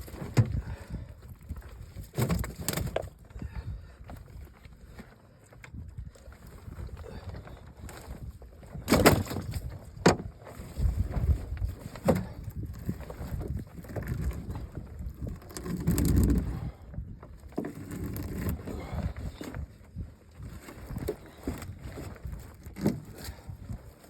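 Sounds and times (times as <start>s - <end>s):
knocks and thumps in a boat: 0.0s - 24.0s.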